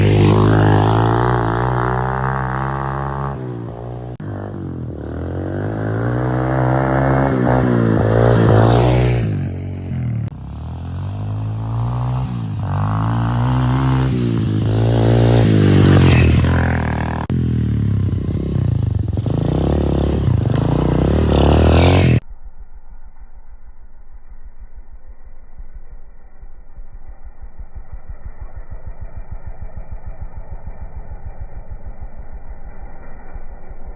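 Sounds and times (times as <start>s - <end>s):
dirt bike engine revving: 0.0s - 22.2s.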